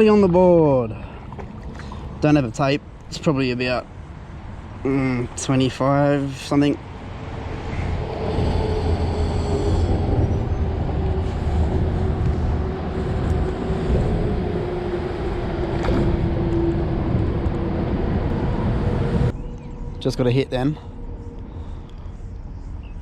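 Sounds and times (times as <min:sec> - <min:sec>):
vehicle passing: 0:06.8 - 0:22.4.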